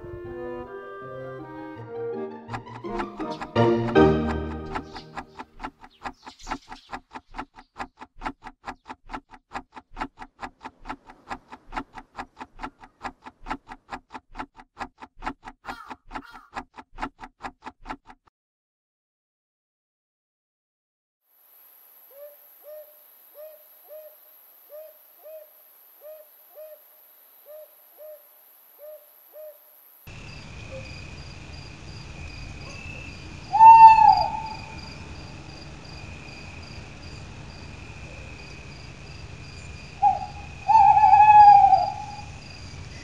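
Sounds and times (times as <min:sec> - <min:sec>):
owl hooting: 0:15.6 - 0:16.5, 0:22.1 - 0:29.7, 0:32.7 - 0:35.0, 0:40.0 - 0:42.4
insect trilling: 0:22.0 - 0:32.0, 0:32.6 - 0:43.0
loud falling hoots: 0:33.5 - 0:35.0, 0:40.0 - 0:42.4.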